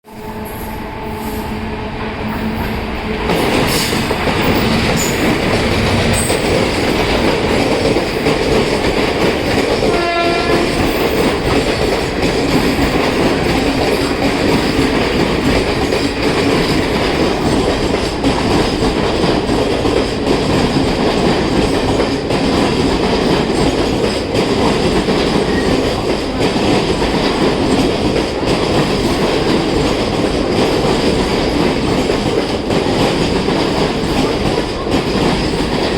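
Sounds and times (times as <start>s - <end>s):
train horn note: 0.1s - 2.8s, 9.8s - 11.2s
train coaches clattering over rails: 0.1s - 35.9s.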